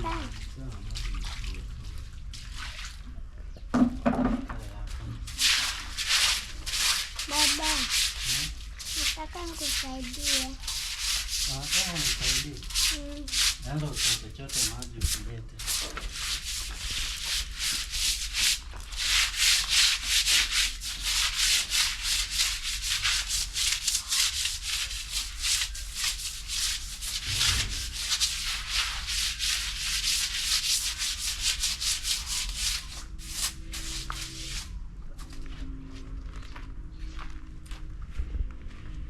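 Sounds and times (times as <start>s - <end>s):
broom sweeping: 5.0s - 34.7s.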